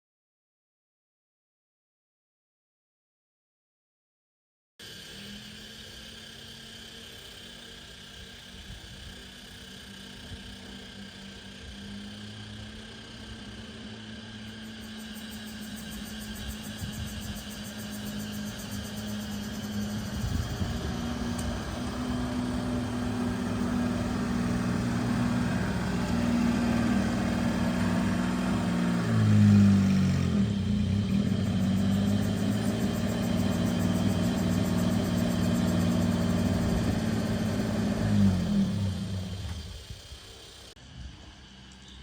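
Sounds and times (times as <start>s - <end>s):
truck engine running: 11.1s - 40.7s.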